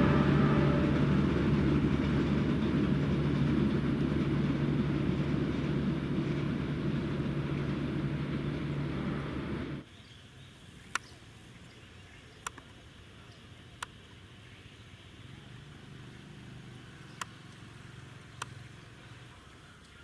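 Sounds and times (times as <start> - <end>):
train rumbling past: 0.0 - 9.8.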